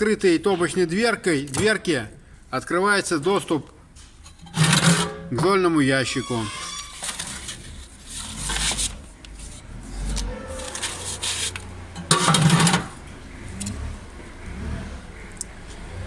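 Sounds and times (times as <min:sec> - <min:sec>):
metal drawer scraping on runners: 0:04.2 - 0:05.3, 0:06.1 - 0:13.0.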